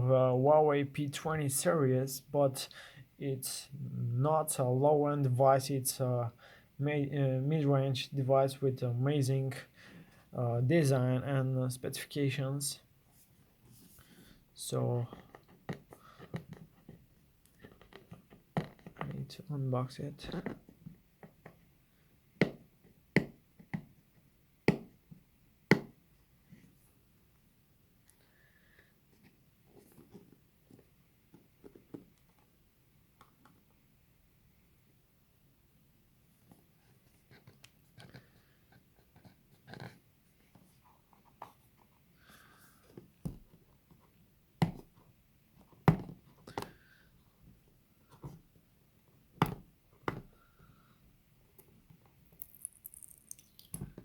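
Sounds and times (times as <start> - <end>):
taps and knocks on a box: 22.4 - 23.9, 24.6 - 25.0, 25.7 - 26.0.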